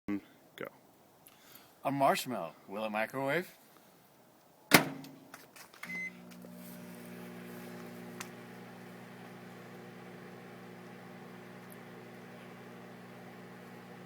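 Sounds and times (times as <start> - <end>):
microwave door shutting: 4.7 - 5.2
microwave humming: 5.8 - 14.0
short beep: 5.9 - 6.2.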